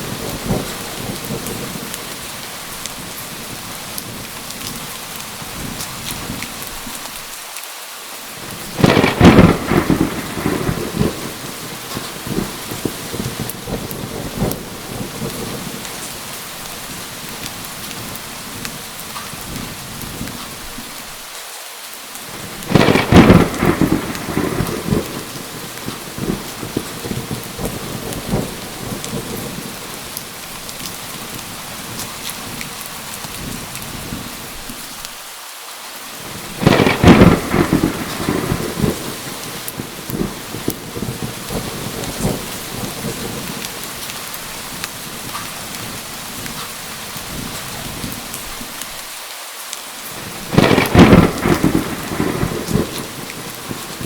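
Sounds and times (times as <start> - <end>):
thunder claps rumbling: 0.0 - 2.3, 8.4 - 20.7, 22.3 - 34.6, 36.3 - 48.7, 50.2 - 54.0
heavy rain: 0.0 - 54.0.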